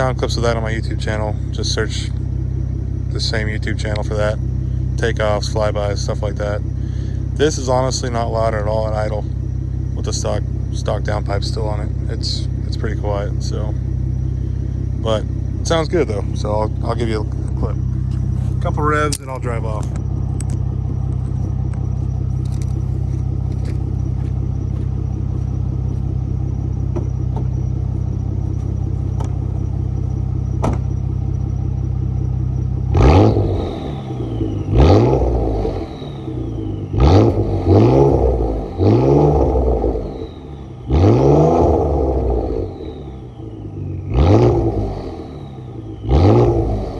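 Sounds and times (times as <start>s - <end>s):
car engine idling: 0.0s - 46.9s
car engine revving sharply: 32.8s - 46.9s.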